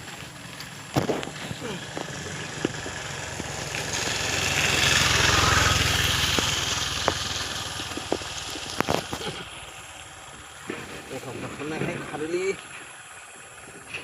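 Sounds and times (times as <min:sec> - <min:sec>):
vehicle engine passing by: 0:00.0 - 0:10.4.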